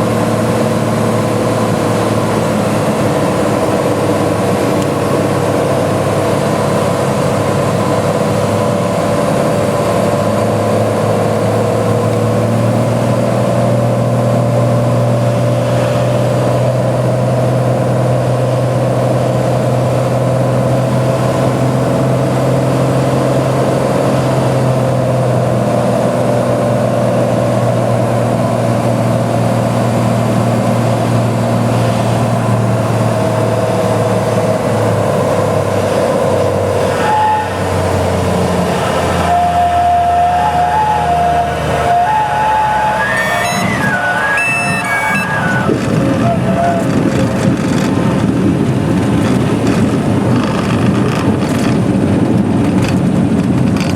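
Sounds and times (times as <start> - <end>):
light aircraft engine droning: 0.0 - 39.2.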